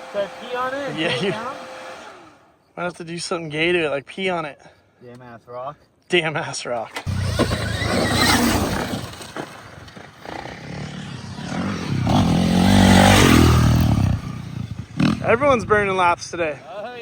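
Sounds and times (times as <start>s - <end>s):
dirt bike engine running: 7.1s - 16.0s.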